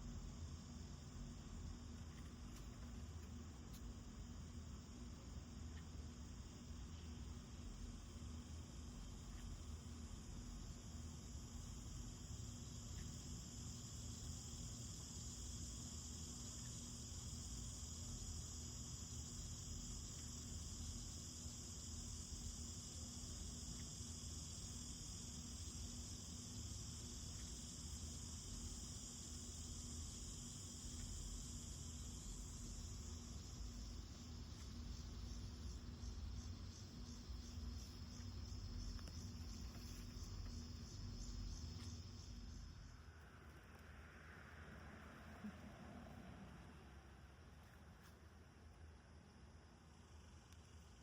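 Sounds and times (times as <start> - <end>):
high-pitched insect chorus: 0.0 - 43.5, 49.8 - 51.0
low background hum: 0.0 - 51.0.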